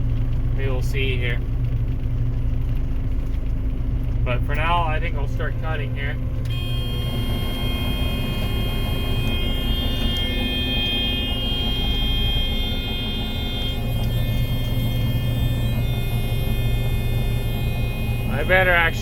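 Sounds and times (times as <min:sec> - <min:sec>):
combine engine rumble: 0:00.0 - 0:19.0
high steady machinery whine: 0:06.4 - 0:19.0.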